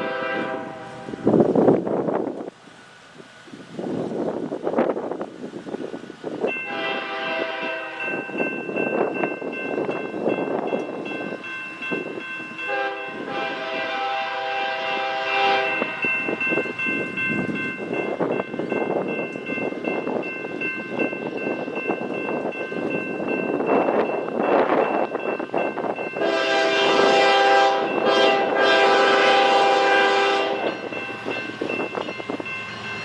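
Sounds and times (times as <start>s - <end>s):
locomotive air horn chord: 0.0s - 1.3s, 6.6s - 8.2s, 12.6s - 16.3s, 26.2s - 30.8s
train rumbling on rails: 0.0s - 33.0s.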